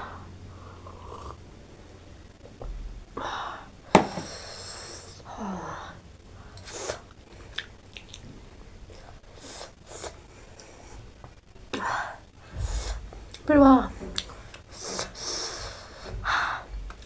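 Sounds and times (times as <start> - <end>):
sniffs and sharp breaths: 6.5 - 7.6, 9.0 - 11.2, 11.8 - 16.9
person chewing: 6.6 - 10.8.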